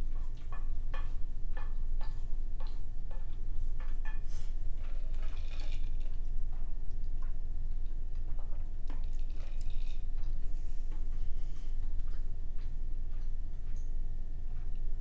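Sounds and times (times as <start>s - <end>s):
steady low hum: 0.0s - 15.0s
wet chewing: 0.1s - 13.9s
small clicks and squishes: 4.8s - 11.1s.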